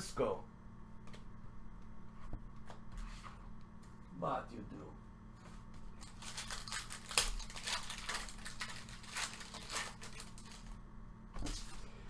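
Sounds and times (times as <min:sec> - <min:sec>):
foil wrapper crinkling: 0:06.0 - 0:10.8
sharp wrapper rip: 0:06.2 - 0:10.6.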